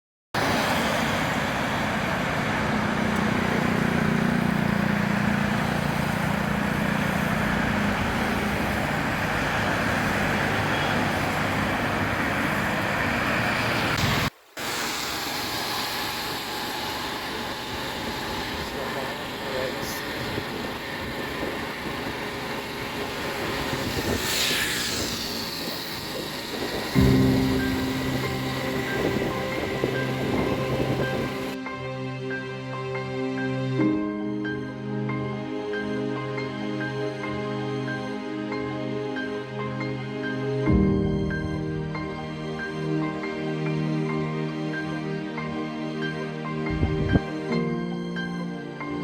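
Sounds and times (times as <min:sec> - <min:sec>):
rain hiss: 0:00.4 - 0:31.6
vehicle engine hum: 0:00.4 - 0:31.6, 0:46.7 - 0:47.9
wet tyres on road: 0:00.4 - 0:31.6.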